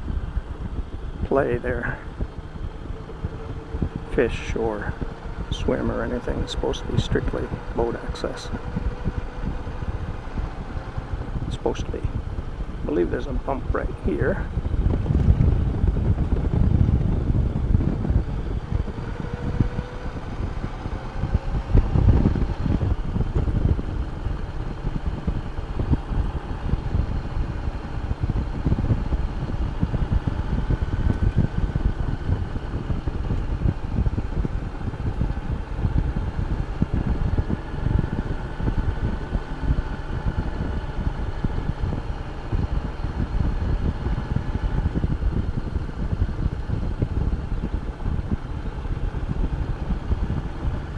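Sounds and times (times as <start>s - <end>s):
motorcycle engine running: 0.0s - 50.9s
wind rush on microphone: 0.0s - 50.9s.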